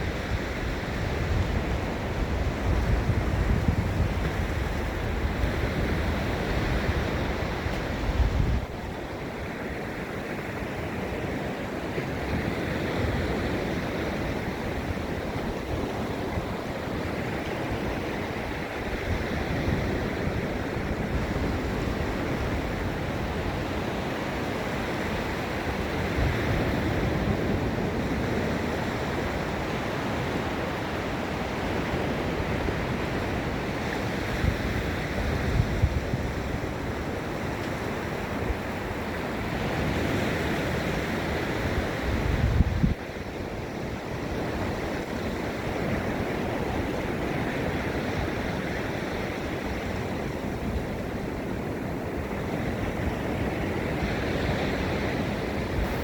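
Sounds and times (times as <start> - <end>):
surf on sandy beach: 0.0 - 56.0
wind rumble on microphone: 0.0 - 56.0.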